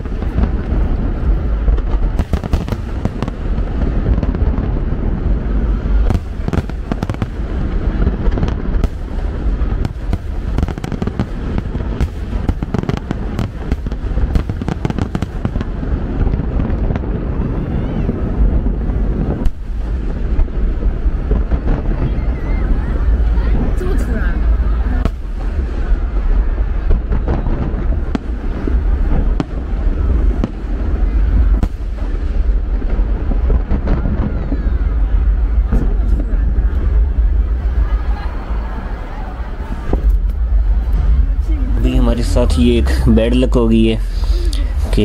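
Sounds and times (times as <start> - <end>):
fireworks booming: 0.0 - 45.0
fireworks cracking and crackling: 0.0 - 45.0.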